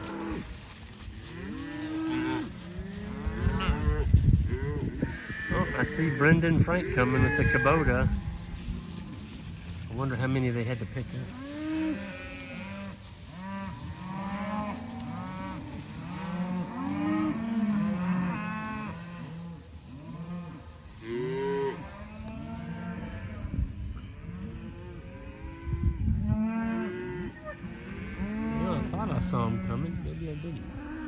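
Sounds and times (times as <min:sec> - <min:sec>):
cows and calves bawling: 0:00.0 - 0:09.4, 0:11.0 - 0:31.0.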